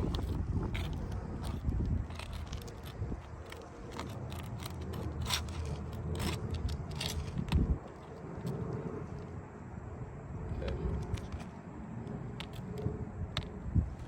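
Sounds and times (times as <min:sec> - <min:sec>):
metal tool scraping shingles: 0:00.1 - 0:07.7.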